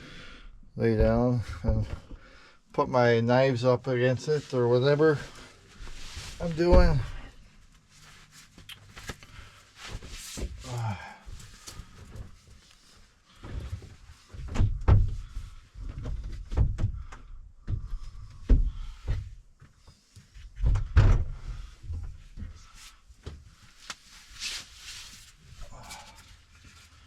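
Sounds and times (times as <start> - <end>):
objects knocking and thudding: 13.4 - 19.4, 20.5 - 22.6.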